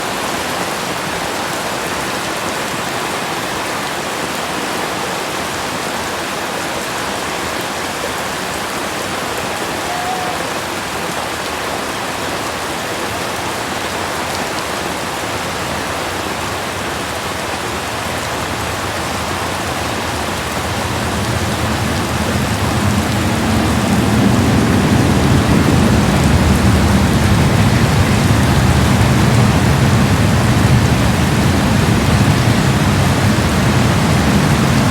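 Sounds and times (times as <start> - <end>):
heavy rain on concrete: 0.0 - 34.9
low rumble: 17.6 - 34.9.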